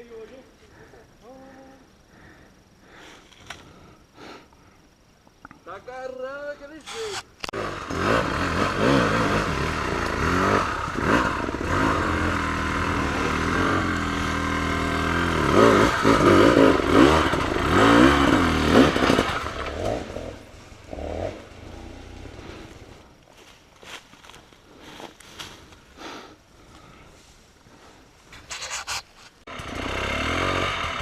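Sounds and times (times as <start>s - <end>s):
motorcycle engine revving: 7.4s - 23.0s, 28.6s - 31.0s.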